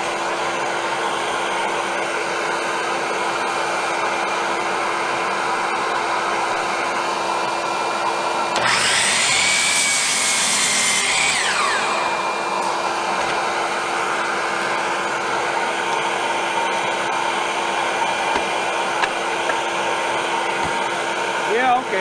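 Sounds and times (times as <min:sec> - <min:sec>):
miter saw motor whine: 0:08.5 - 0:22.0.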